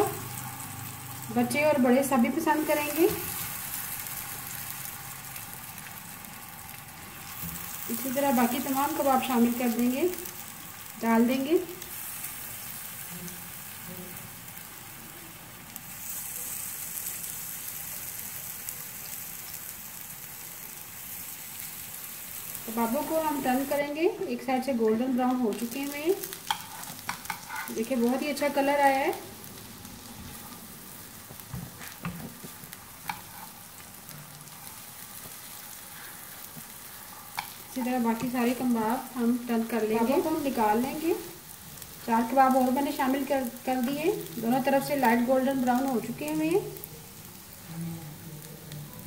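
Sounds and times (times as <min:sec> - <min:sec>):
food sizzling in oil: 0:00.0 - 0:49.0
spatula scraping on griddle: 0:26.4 - 0:27.9, 0:31.7 - 0:33.9, 0:34.5 - 0:38.4.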